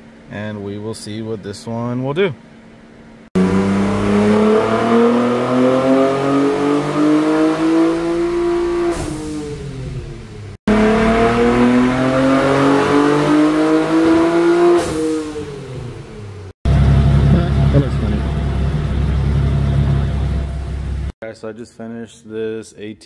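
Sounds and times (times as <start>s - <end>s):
car engine at full throttle: 3.4s - 21.2s.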